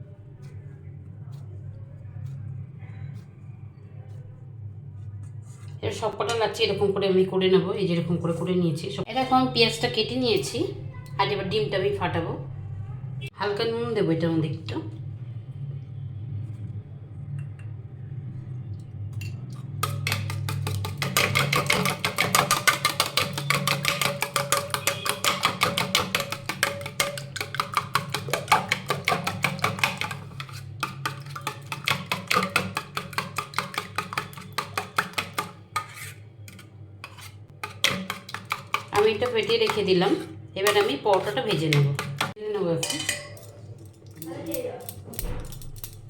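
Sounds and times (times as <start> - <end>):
fork beating egg in bowl: 19.2 - 42.4.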